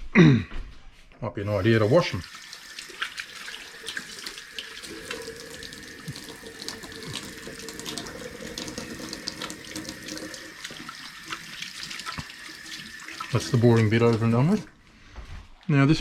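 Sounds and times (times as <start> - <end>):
hands rinsing under water: 1.5 - 14.8
tap water splashing into sink: 1.6 - 14.8.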